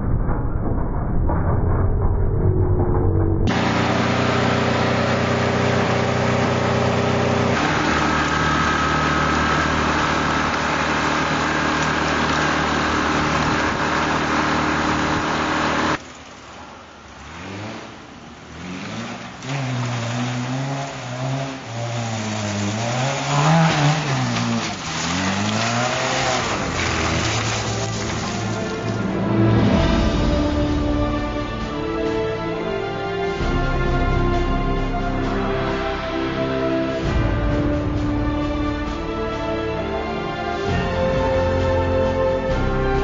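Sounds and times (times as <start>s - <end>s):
car revving while driving: 3.5s - 16.0s, 17.1s - 29.0s
car engine idling: 3.5s - 19.4s.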